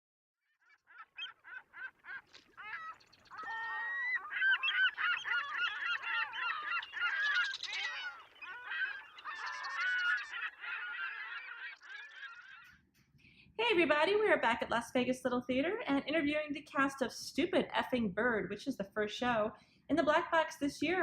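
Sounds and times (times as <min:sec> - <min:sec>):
flock of birds calling: 0:00.6 - 0:12.9.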